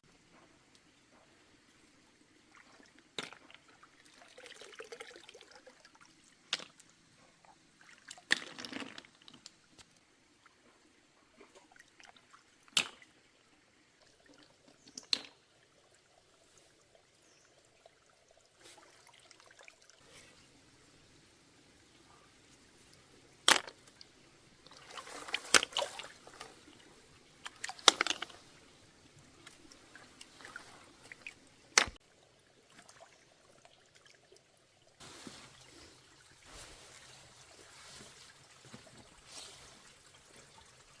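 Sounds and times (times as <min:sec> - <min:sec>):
water trickling and sloshing: 0:00.1 - 0:41.0.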